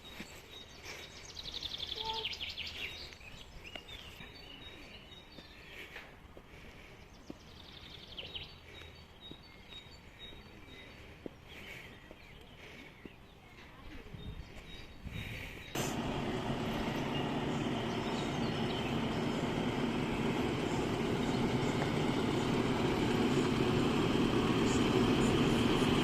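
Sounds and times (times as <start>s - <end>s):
birds trilling: 14.5s - 26.0s.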